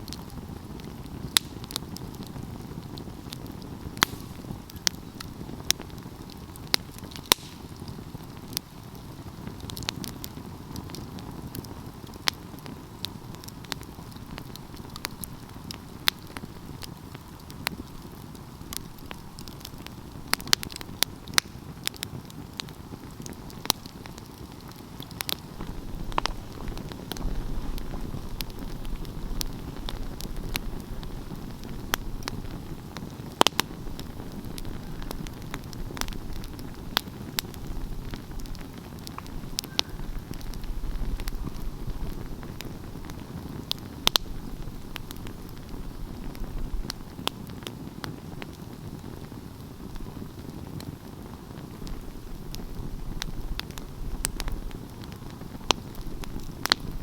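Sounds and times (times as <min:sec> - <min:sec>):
burning wood crackling and popping: 0:00.0 - 0:57.0
wood fire burning: 0:00.0 - 0:57.0.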